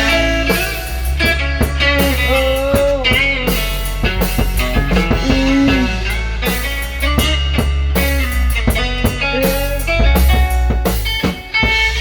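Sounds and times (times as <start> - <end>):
bass and drum beat: 0.0 - 12.0
blues-rock guitar bending notes: 0.0 - 12.0.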